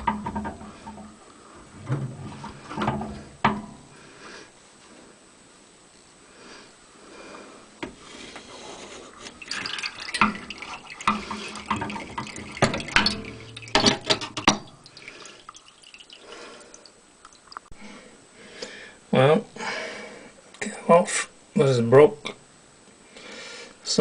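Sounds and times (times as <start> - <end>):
knocks and clatter of handling: 0.0 - 3.8, 9.3 - 14.8
water splashing and dripping: 9.2 - 17.7.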